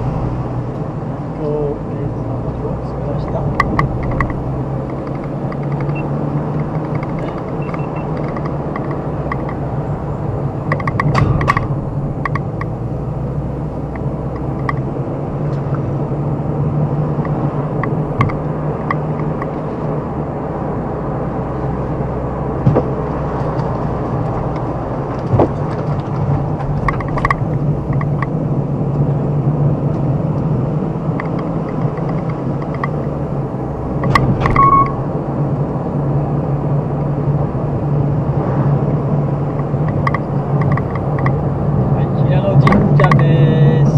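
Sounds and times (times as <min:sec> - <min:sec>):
car engine and road hum: 0:00.0 - 0:43.9
light clicks and knocks: 0:03.2 - 0:09.7, 0:22.6 - 0:28.4, 0:31.1 - 0:33.1, 0:39.6 - 0:41.4.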